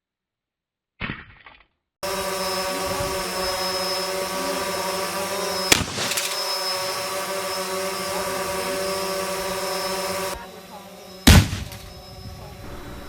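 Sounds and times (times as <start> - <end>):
machine drone: 2.0 - 13.0
gunshot: 11.3 - 11.8.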